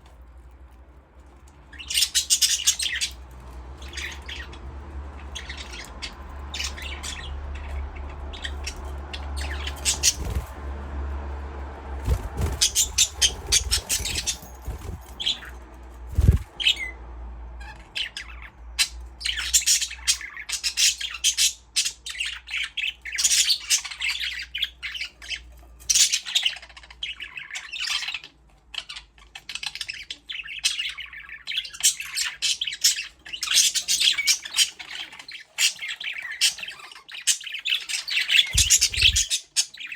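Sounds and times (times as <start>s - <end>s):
budgerigars chirping: 1.7s - 3.2s, 3.8s - 10.6s, 12.0s - 15.5s, 16.1s - 17.0s, 17.6s - 39.9s.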